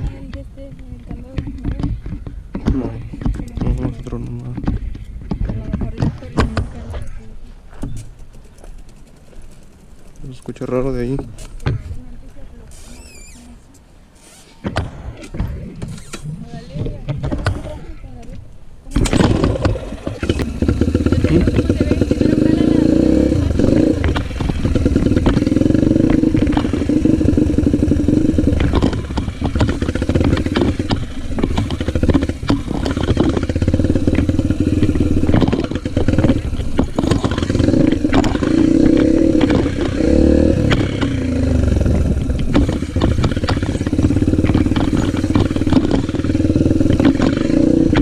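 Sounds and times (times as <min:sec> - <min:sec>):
motocross motorcycle engine revving: 0:18.9 - 0:48.0.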